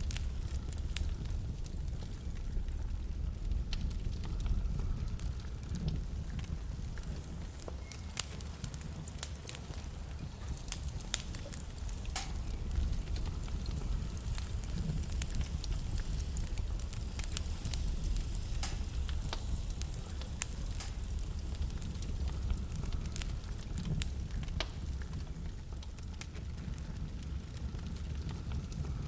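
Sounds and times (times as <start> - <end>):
low rumble of flames: 0.0 - 29.0
wood fire crackling and popping: 0.0 - 29.0.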